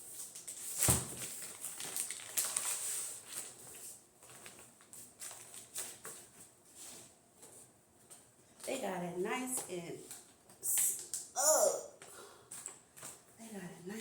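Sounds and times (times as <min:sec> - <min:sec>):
plastic wrapping crinkling: 0:00.1 - 0:06.4.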